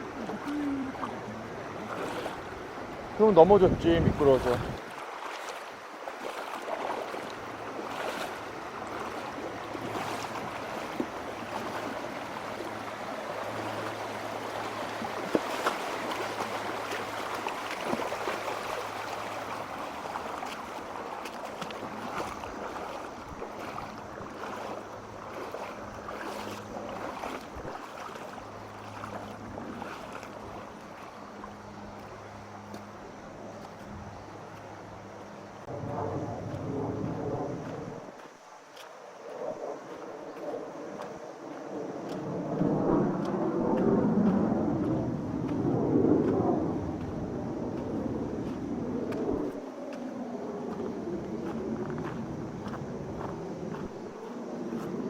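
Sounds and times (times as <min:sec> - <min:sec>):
stream water rushing over rocks: 0:00.0 - 0:31.6
sharp knocks and splashes: 0:01.8 - 0:02.4, 0:04.4 - 0:32.1.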